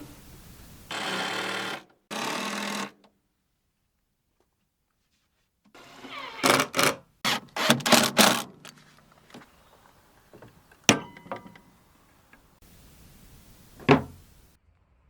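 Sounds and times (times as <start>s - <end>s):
knock: 13.8s - 14.2s.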